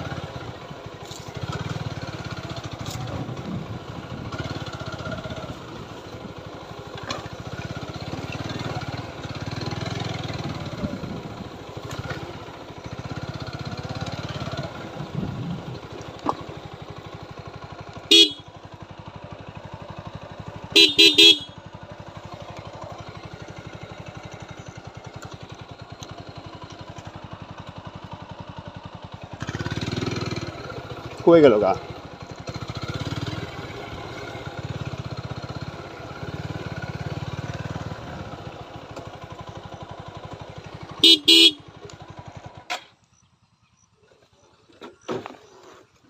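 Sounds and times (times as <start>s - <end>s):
motorcycle engine running: 0.0s - 46.0s
motorcycle horn honks: 18.0s - 18.7s, 20.6s - 22.2s, 40.9s - 42.0s.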